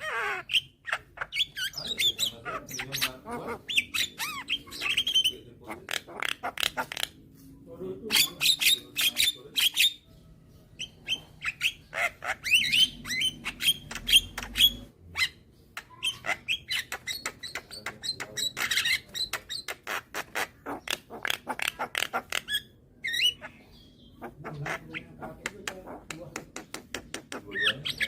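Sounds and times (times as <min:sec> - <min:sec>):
bird harsh clicks and squawks: 0:00.0 - 0:07.2, 0:10.8 - 0:28.0.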